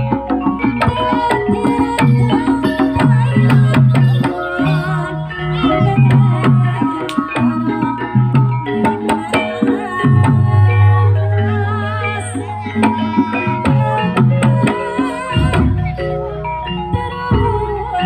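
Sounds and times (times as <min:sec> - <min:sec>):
hand drums beating: 0:00.0 - 0:16.0
struck tuned percussion melody: 0:00.0 - 0:18.0
long low held tone: 0:10.0 - 0:12.7.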